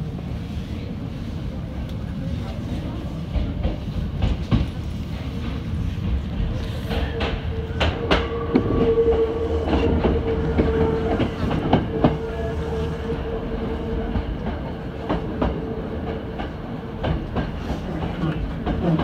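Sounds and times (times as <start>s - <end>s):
train running rumble: 0.0s - 19.0s
train wheels clicking over rail joints: 3.3s - 12.3s, 14.0s - 19.0s.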